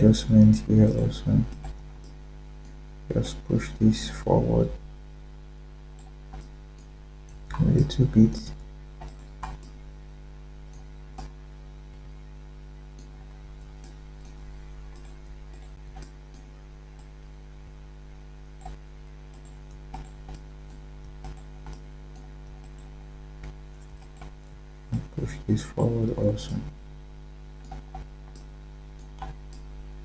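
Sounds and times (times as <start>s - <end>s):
low electrical hum: 0.0s - 30.0s
computer mouse clicks: 1.4s - 2.8s, 6.0s - 9.8s, 10.7s - 11.4s, 12.9s - 17.3s, 18.6s - 25.3s, 27.6s - 29.7s
keyboard typing clicks: 1.4s - 2.8s, 6.0s - 9.9s, 12.9s - 17.3s, 18.6s - 25.3s, 27.6s - 29.7s.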